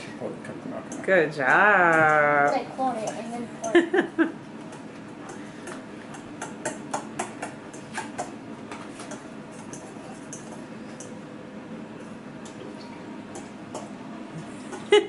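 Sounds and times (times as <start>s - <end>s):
fork clinking against a bowl: 9.0s - 11.2s.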